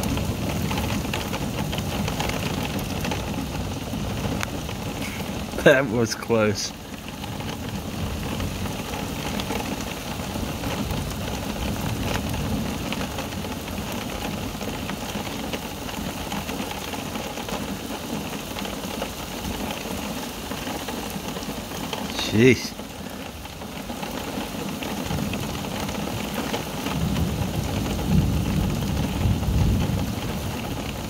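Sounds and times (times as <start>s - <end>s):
rain hissing: 0.0s - 31.0s
raindrop clicks: 0.0s - 31.0s
low thunder rumble: 26.9s - 31.0s.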